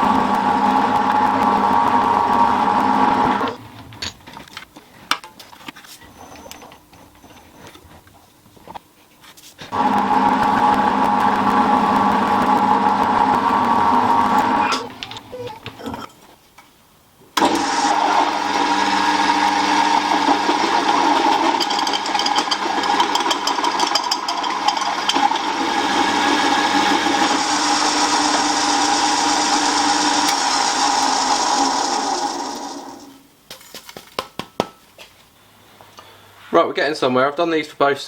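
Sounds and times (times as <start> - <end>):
milling machine cutting: 0.0 - 3.6, 9.7 - 14.9, 17.4 - 33.1.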